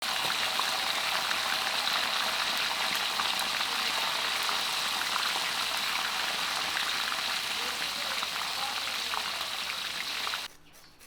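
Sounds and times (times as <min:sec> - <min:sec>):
chicken deep-frying in oil: 0:00.0 - 0:10.5.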